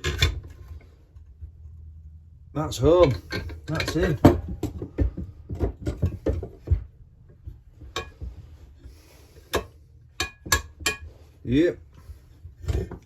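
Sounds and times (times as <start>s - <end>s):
metal tools knocking and clicking: 0.0s - 0.7s, 3.0s - 6.8s, 7.8s - 8.4s, 9.5s - 11.2s.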